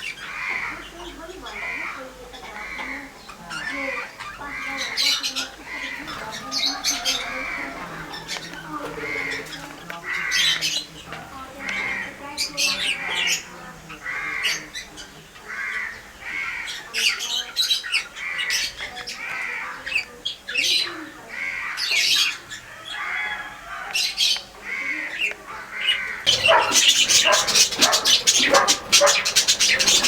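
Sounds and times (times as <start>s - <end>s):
pet bird squawking: 25.6s - 30.0s.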